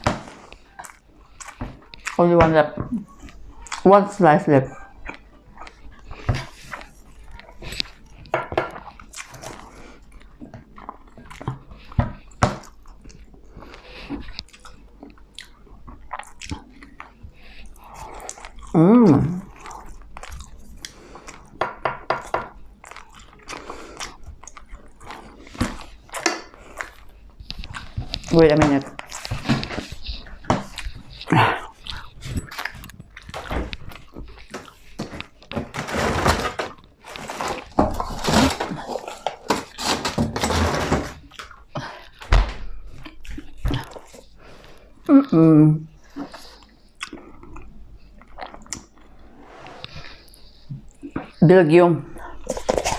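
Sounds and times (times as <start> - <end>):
chewing crispy bacon: 0.0 - 4.3, 4.9 - 35.7, 36.7 - 40.1, 41.2 - 49.2
packaging rustling and knocking: 33.3 - 41.3.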